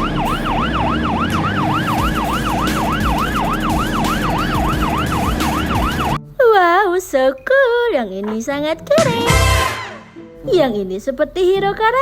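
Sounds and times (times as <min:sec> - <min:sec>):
police siren yelping: 0:00.0 - 0:06.2.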